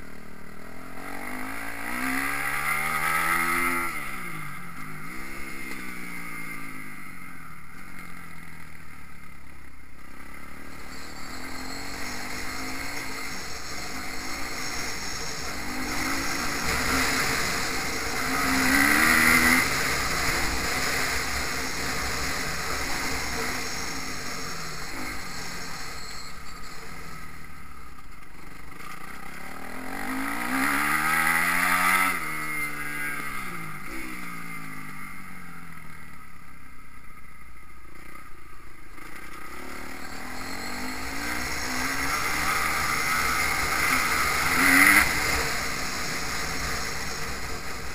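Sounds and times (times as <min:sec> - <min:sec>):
motocross bike engines revving: 0:00.0 - 0:36.2, 0:37.9 - 0:47.9.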